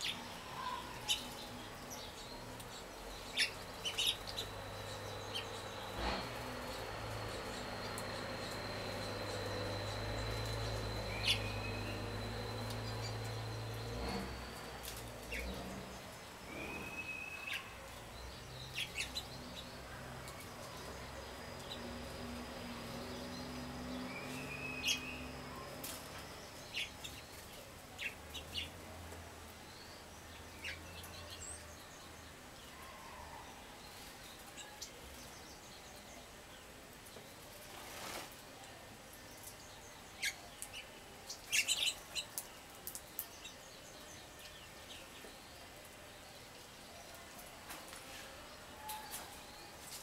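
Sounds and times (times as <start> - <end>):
faint low hum: 0.0 - 50.0
whistled bird notes: 16.4 - 17.8, 24.1 - 25.7.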